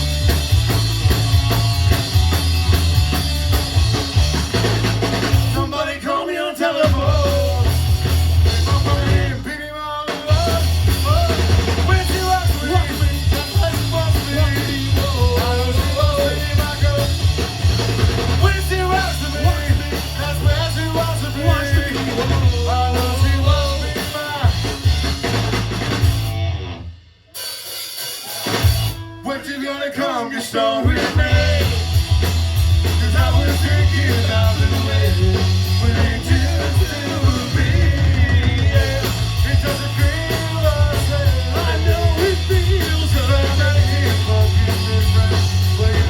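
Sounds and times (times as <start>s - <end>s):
rock band playing: 0.0s - 29.8s, 30.6s - 46.0s
person singing: 8.6s - 17.2s, 32.8s - 46.0s.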